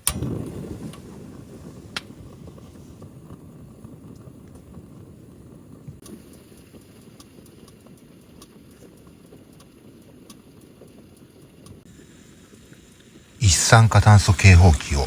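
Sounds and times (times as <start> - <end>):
gas heater burning: 0.0 - 15.0
faint ticks: 6.0 - 11.8.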